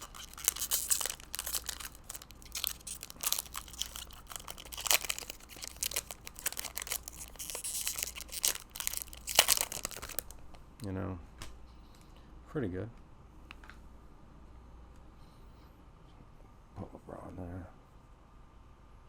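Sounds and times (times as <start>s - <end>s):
card wrappers crinkling: 0.0s - 10.6s.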